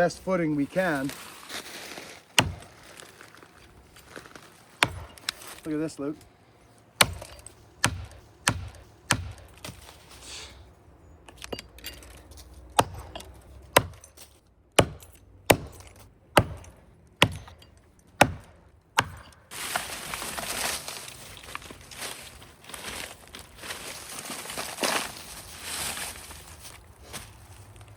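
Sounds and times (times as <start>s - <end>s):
axe chopping wood: 2.4s - 2.8s, 4.8s - 5.6s, 7.0s - 9.9s, 12.7s - 14.1s, 14.8s - 19.5s.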